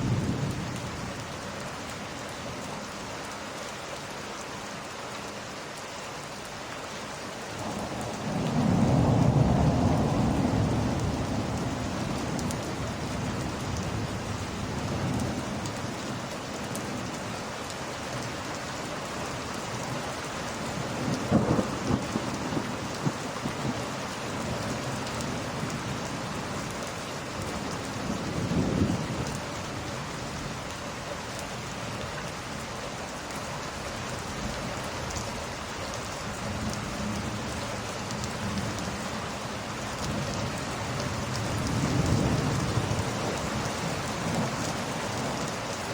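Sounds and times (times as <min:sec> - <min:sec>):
steady rain: 0:00.0 - 0:45.9
thunder rumbling: 0:07.6 - 0:15.4, 0:20.8 - 0:26.1, 0:40.0 - 0:45.5.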